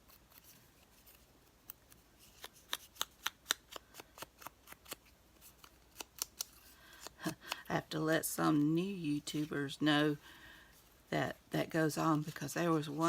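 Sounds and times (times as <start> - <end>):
scissors snipping paper: 0.0 - 7.7.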